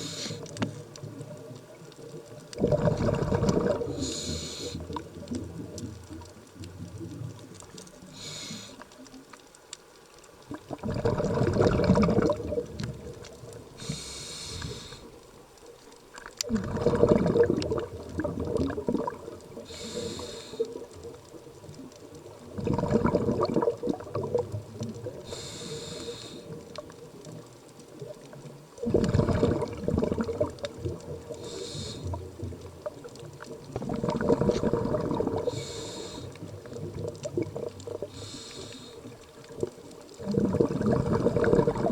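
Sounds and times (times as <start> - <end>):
regulator inhale hiss: 0.0 - 0.8, 3.8 - 5.0, 8.0 - 9.0, 13.8 - 15.2, 19.6 - 20.9, 25.2 - 26.6, 31.3 - 32.3, 35.4 - 36.6, 38.0 - 39.2
exhaled bubbles rushing: 1.0 - 7.6, 10.5 - 13.9, 16.4 - 25.4, 26.5 - 38.4, 39.1 - 41.9.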